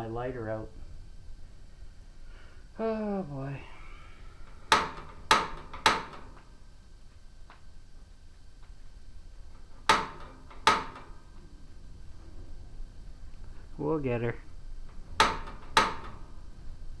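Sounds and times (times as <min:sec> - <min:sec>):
fireplace igniter clicking: 0:04.4 - 0:06.6, 0:09.5 - 0:11.7, 0:14.7 - 0:17.0.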